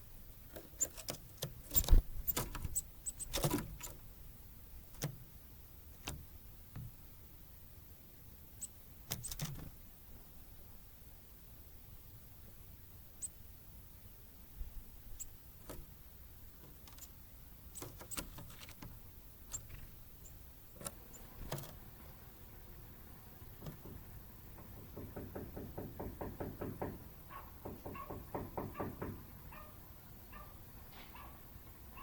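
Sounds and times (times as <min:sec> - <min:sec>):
bird tapping seed with bill: 0:23.5 - 0:27.0.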